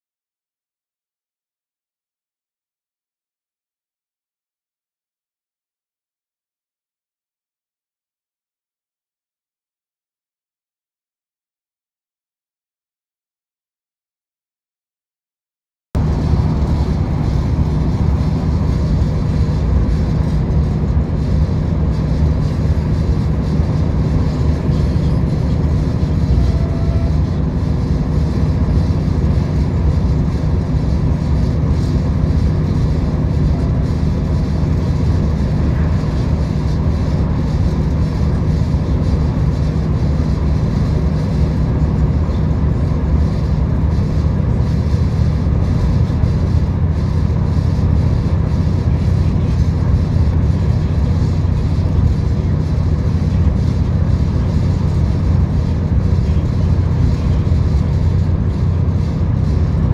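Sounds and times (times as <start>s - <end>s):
train rumbling inside carriage: 16.0s - 59.9s.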